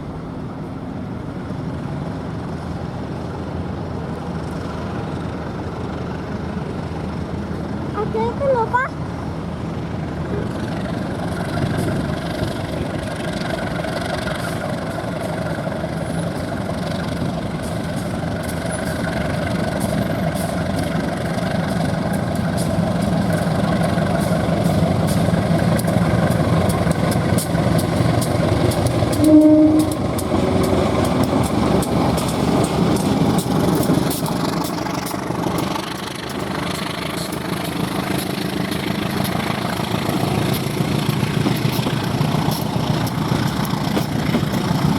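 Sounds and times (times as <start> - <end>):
train rumbling: 0.0 - 44.9
wheels clattering over rails: 0.0 - 44.9
train horn toot: 29.1 - 30.2.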